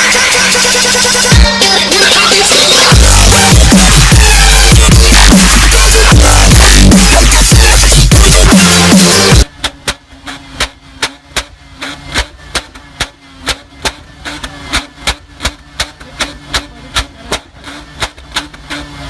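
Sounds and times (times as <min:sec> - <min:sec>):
faint engine hum: 0:00.0 - 0:19.0
sharp repeating knock: 0:02.9 - 0:10.0.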